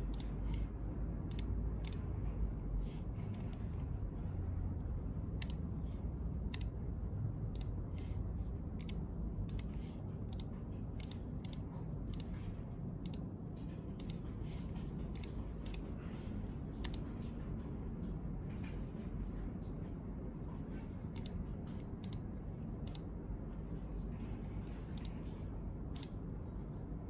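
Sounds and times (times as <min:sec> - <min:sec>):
low background rumble: 0:00.0 - 0:27.0
sharp light clicks: 0:06.5 - 0:06.8, 0:26.0 - 0:26.2.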